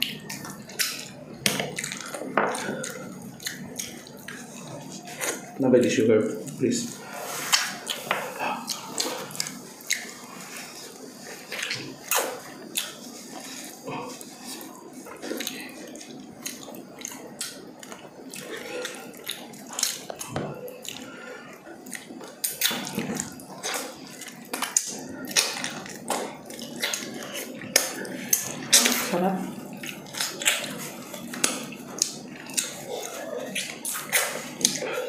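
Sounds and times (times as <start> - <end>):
chewing clicks: 0.0 - 5.5, 29.7 - 34.9.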